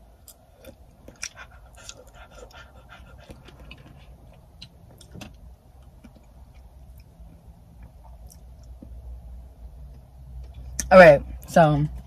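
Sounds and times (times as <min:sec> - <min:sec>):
faint chewing: 0:00.2 - 0:05.2, 0:05.8 - 0:09.0.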